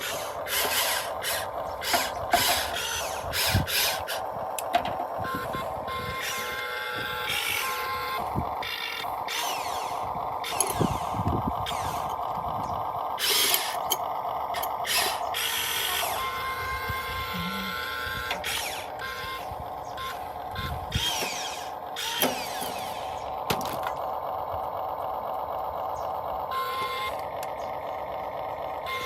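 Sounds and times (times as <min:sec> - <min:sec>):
machine rasping: 0:00.0 - 0:04.8, 0:05.5 - 0:12.4, 0:13.2 - 0:24.0
electric gear motors whining: 0:00.0 - 0:29.0.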